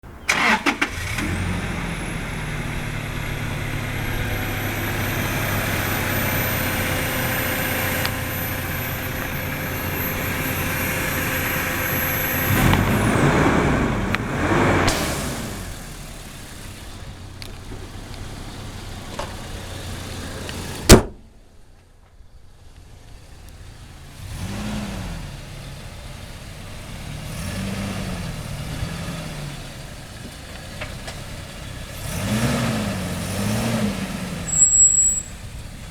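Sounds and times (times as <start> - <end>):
pickup engine idling and revving: 0.3 - 35.9
loud sharp bang: 13.9 - 16.0, 20.9 - 21.2.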